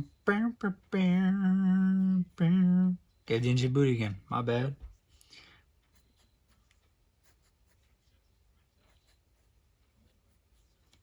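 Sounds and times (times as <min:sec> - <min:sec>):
pen scratching on paper: 0:05.9 - 0:11.0.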